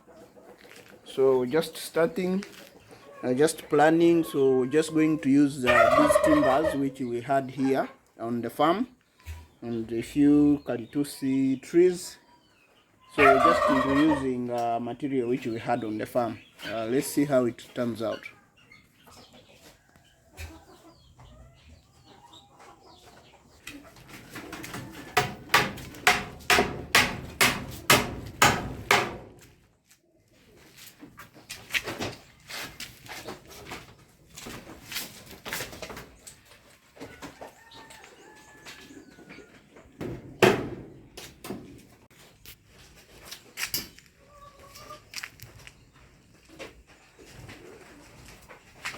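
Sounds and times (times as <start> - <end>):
chickens clucking: 0.0 - 48.9
hammer blows on timber: 25.2 - 29.2.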